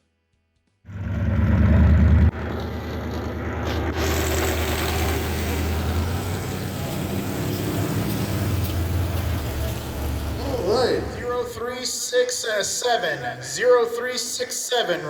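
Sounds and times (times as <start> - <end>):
car engine with low exhaust note: 0.9 - 11.1.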